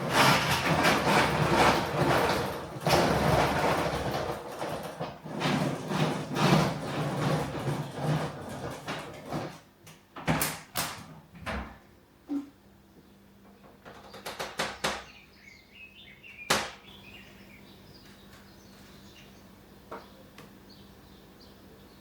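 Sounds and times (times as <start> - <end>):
sharp clicks and knocks: 13.5 - 15.1.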